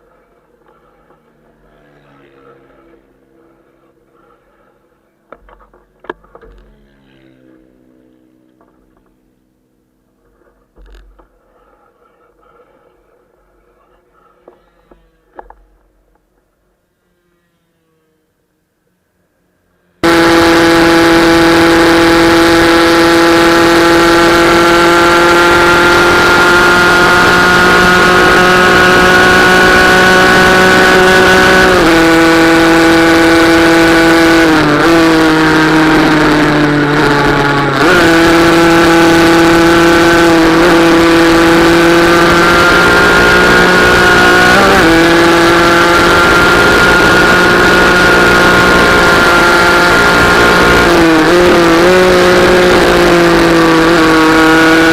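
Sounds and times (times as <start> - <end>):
racing motorcycle engine revving: 0.0 - 4.7, 20.0 - 54.9.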